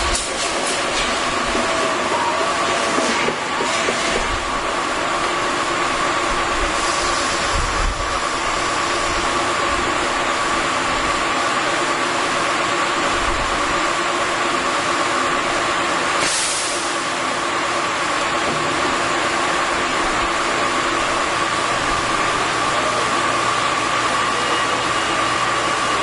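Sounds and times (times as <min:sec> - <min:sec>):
heavy industrial machinery running: 0:00.0 - 0:26.0
brief hiss: 0:16.2 - 0:16.9.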